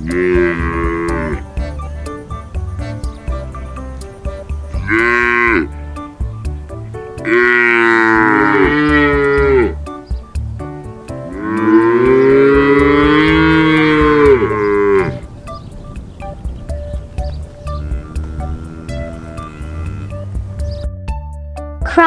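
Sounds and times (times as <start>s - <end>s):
cattle mooing: 0.0s - 1.7s, 4.8s - 5.8s, 7.2s - 9.8s, 11.2s - 15.3s, 17.7s - 20.3s.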